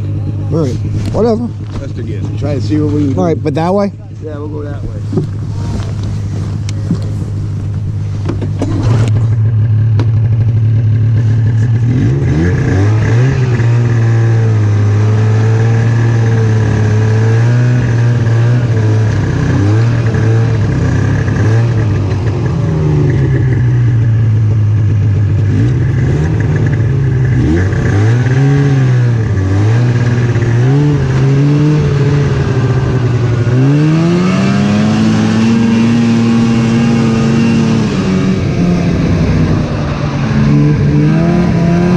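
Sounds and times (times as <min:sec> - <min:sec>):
snowmobile engine running: 0:00.0 - 0:41.9.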